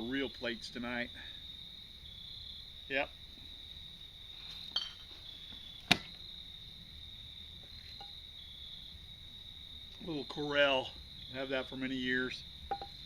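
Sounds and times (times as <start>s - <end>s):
crickets chirping: 0.0s - 13.0s
dishes clinking: 4.7s - 5.1s, 12.7s - 13.0s.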